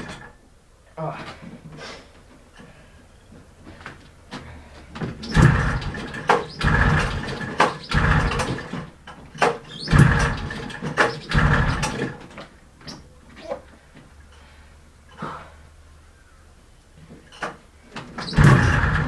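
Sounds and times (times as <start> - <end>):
engine cranking without catching: 0.0 - 0.4, 4.8 - 13.1, 17.2 - 19.0
recoil starter pulls: 0.0 - 0.4, 3.9 - 13.0, 17.2 - 19.0.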